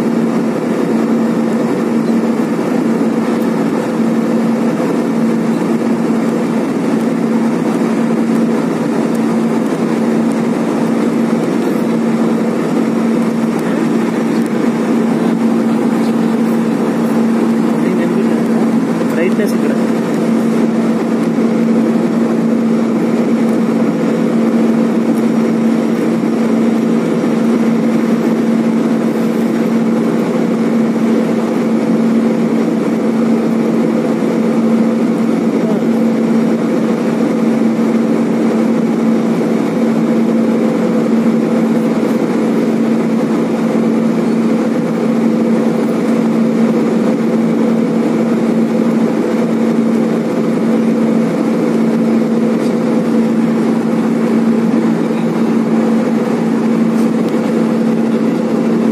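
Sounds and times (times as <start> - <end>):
airliner cabin engine roar: 0.0 - 58.9
constant low hum: 0.0 - 58.9.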